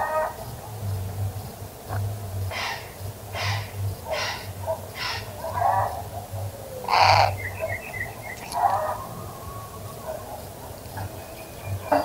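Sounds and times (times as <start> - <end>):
harsh raspy bird calls: 2.5 - 12.0.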